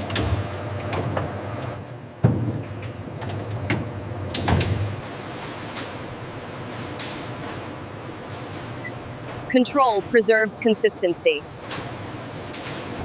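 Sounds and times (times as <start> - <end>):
machinery humming: 5.0 - 13.0.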